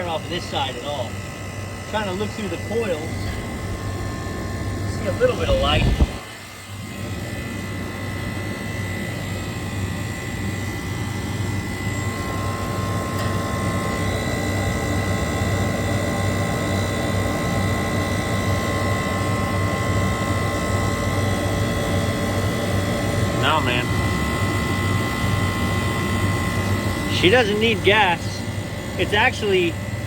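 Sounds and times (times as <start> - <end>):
condensing unit drone and hum: 0.0 - 30.0
high-pitched whine: 1.9 - 7.3.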